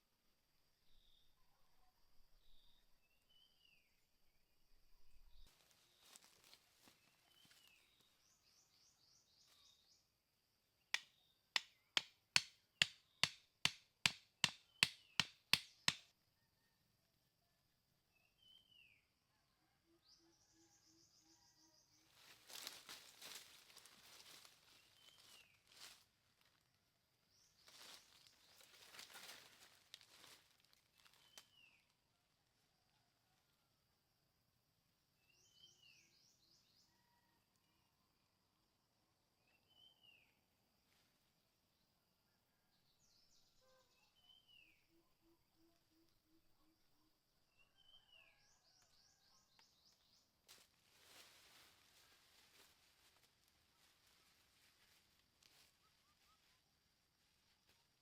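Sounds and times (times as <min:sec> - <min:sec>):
faint rustling and crackling: 0:05.4 - 0:08.2, 0:22.1 - 0:26.8, 0:27.6 - 0:31.6, 0:50.5 - 0:58.0
sharp knocks on wood: 0:11.0 - 0:16.0.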